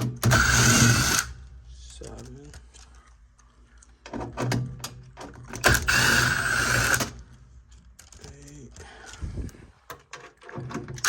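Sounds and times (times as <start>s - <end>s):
small power tool motor: 0.3s - 1.4s, 5.7s - 7.2s.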